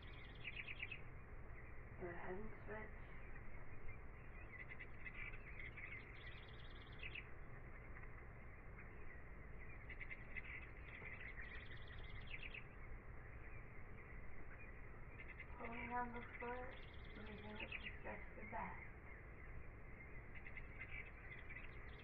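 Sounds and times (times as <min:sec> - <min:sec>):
birds trilling chirps: 0:00.0 - 0:22.0
steady low background noise: 0:00.0 - 0:22.0.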